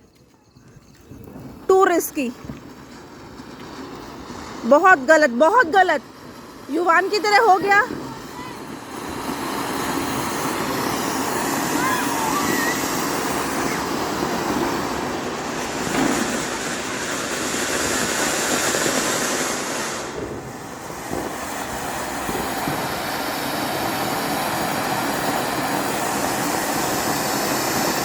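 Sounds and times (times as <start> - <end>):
firecracker hissing: 1.3 - 28.0.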